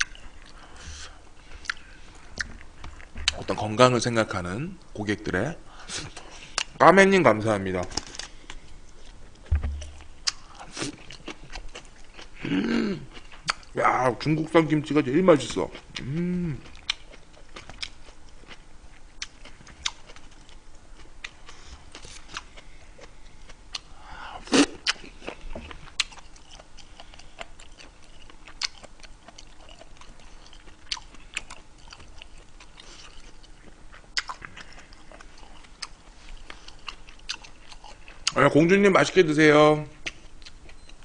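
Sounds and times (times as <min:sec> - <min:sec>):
person chewing food: 0:00.0 - 0:03.5, 0:08.2 - 0:13.8, 0:15.7 - 0:38.4, 0:40.0 - 0:41.0.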